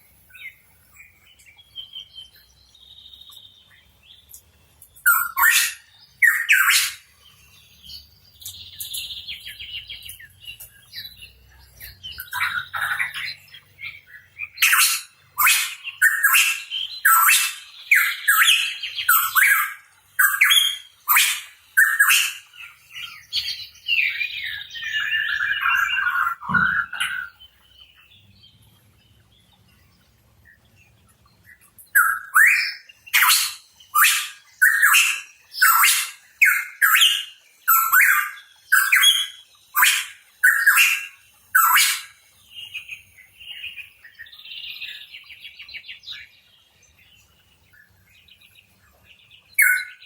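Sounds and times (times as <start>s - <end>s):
bird warbling chatter: 24.0s - 27.4s
bird squawking: 24.9s - 27.4s, 32.0s - 39.2s.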